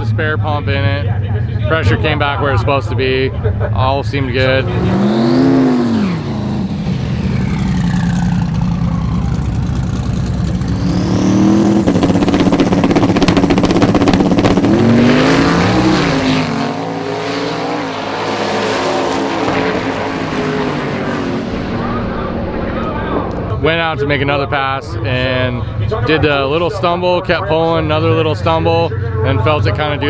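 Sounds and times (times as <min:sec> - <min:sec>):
race car engine revving: 0:01.7 - 0:23.6.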